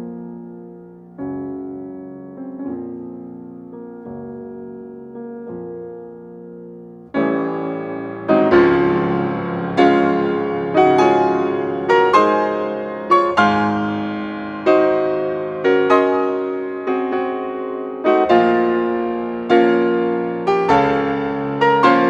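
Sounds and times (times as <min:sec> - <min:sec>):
soft piano chords: 0:00.0 - 0:22.0.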